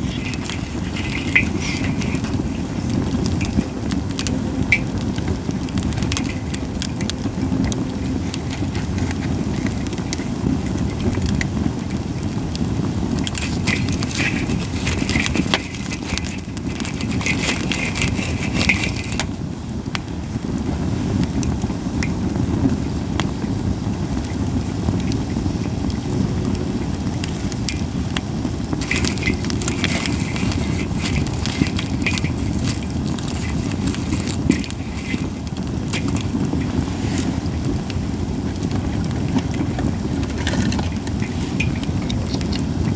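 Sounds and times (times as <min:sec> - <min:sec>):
low rumble: 0:00.0 - 0:14.6
campfire crackling and popping: 0:00.0 - 0:42.9.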